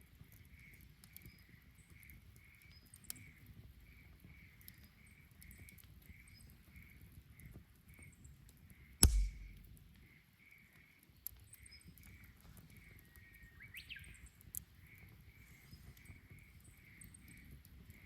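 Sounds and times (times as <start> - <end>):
bonfire popping and snapping: 9.0 - 10.0.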